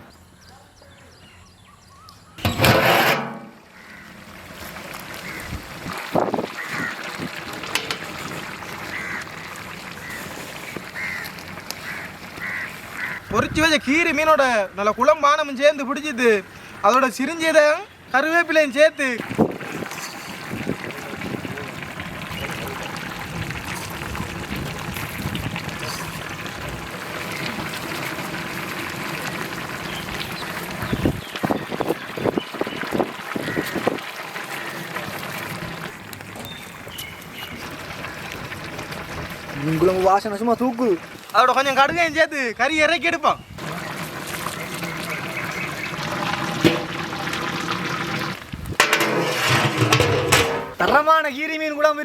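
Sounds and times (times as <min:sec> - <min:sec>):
crackling hiss: 0:03.6 - 0:14.5, 0:18.5 - 0:42.2
curry bubbling at a boil: 0:03.8 - 0:15.2, 0:16.1 - 0:42.2, 0:43.6 - 0:50.9.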